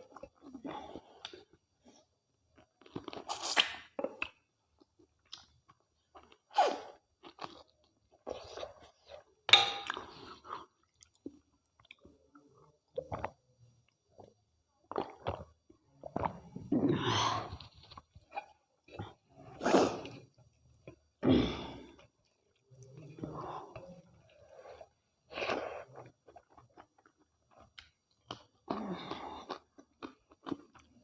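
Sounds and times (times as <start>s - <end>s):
person chewing food: 0.0s - 12.2s, 24.1s - 31.0s.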